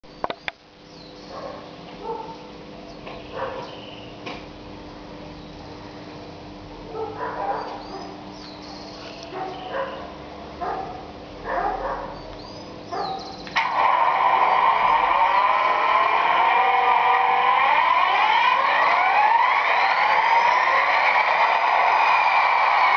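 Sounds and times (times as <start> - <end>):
low electrical hum: 0.0 - 22.9
dog barking and yipping: 1.3 - 2.4, 3.3 - 3.7, 6.9 - 8.2, 9.3 - 12.2, 12.9 - 15.6.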